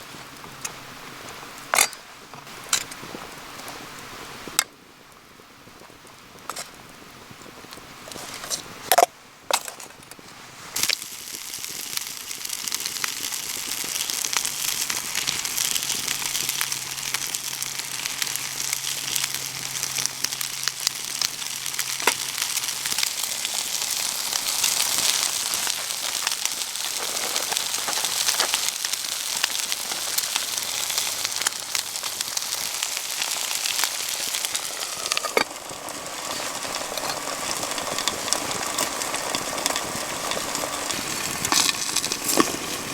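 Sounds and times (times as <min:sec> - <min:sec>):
food sizzling in a pan: 0:10.6 - 0:42.9.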